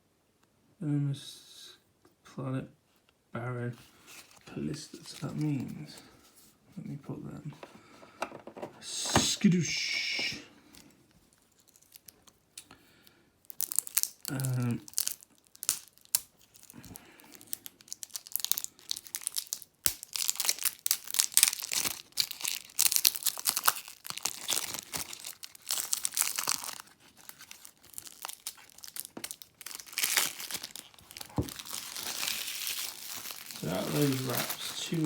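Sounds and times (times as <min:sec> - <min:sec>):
plastic shrink-wrap crinkling: 0:03.8 - 0:06.2, 0:11.2 - 0:12.6, 0:13.4 - 0:35.0.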